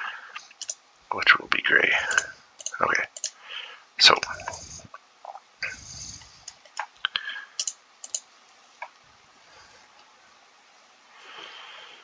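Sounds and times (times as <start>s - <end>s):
sharp clicks: 0.4s - 0.8s, 2.1s - 3.4s, 4.2s - 9.0s.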